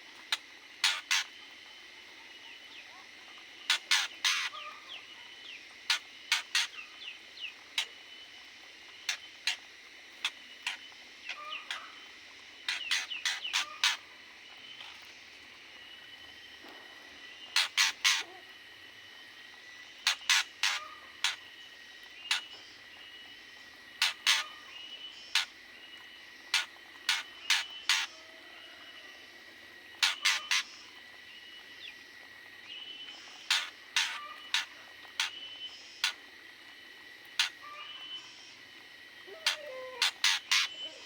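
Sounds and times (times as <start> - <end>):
birds giving sharp calls: 0.0 - 1.4, 3.7 - 5.2, 5.9 - 8.0, 9.1 - 15.1, 17.4 - 18.4, 20.0 - 21.5, 24.0 - 25.6, 26.5 - 28.4, 30.0 - 31.0, 33.0 - 36.2, 37.3 - 38.4, 39.2 - 41.0
faint high hum: 0.0 - 41.0.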